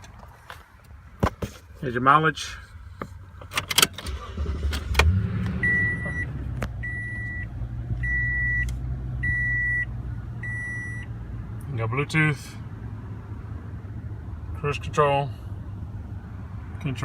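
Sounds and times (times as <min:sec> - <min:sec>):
engine idling hum: 0:02.4 - 0:17.0
engine starting with a click: 0:03.6 - 0:05.5
dashboard warning chime: 0:05.6 - 0:11.1.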